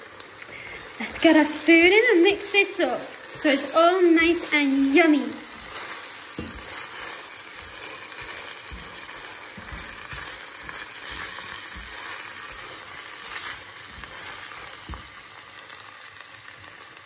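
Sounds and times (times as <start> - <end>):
onions sizzling in oil: 0.0 - 17.0
spoon knocking against pan: 6.3 - 6.8.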